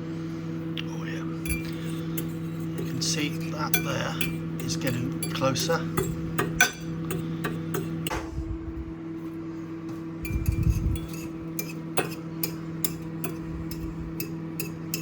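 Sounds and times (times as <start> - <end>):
steady low hum: 0.0 - 15.0
spoon clinking against a bowl: 1.4 - 8.1, 10.2 - 15.0.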